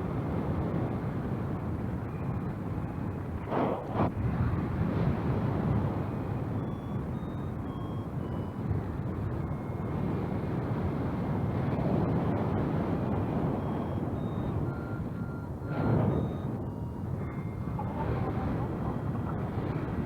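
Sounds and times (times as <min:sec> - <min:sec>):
strong wind buffeting microphone: 0:00.0 - 0:20.0
variometer short beeps: 0:06.4 - 0:10.4, 0:12.9 - 0:20.0.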